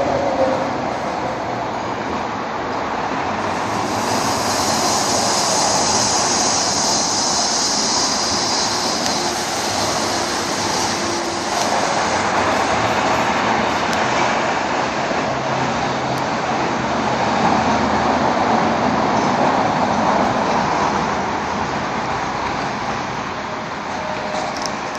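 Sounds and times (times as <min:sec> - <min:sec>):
rocket motor rushing hiss: 0:03.1 - 0:15.4.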